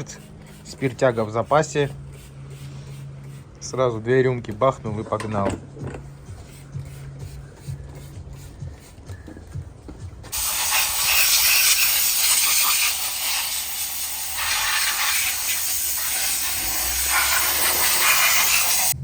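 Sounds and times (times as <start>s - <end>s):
pressurised air jet hissing: 10.3s - 19.0s.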